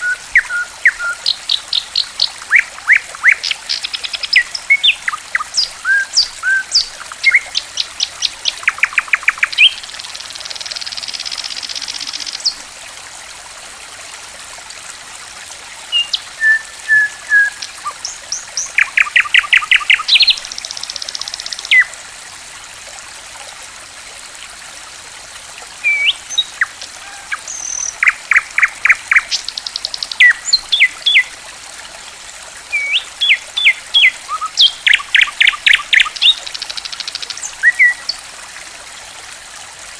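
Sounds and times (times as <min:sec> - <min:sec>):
songbird chirping and trilling: 0:00.0 - 0:09.8, 0:15.9 - 0:21.9, 0:25.9 - 0:31.3, 0:32.8 - 0:38.2
water trickling: 0:00.0 - 0:39.9.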